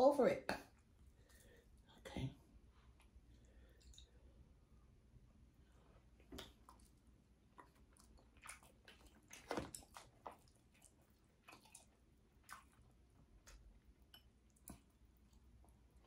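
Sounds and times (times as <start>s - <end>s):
soft chewing: 0.6s - 16.0s
small mouth clicks and crackles: 6.2s - 16.0s.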